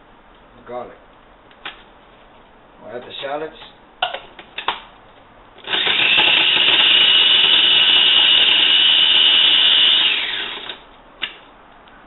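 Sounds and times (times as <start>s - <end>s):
food chopper motor whining: 5.6s - 10.8s.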